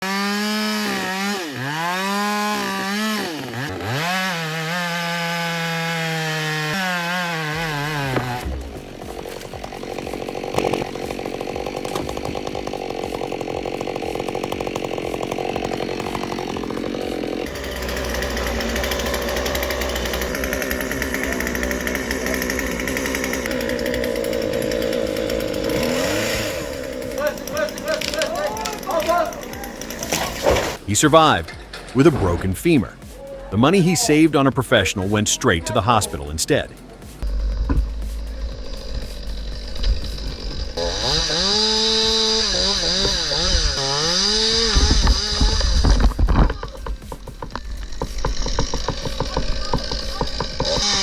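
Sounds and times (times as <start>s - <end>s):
two-stroke chainsaw revving: 0.0s - 51.0s
deep rumble: 37.2s - 41.2s.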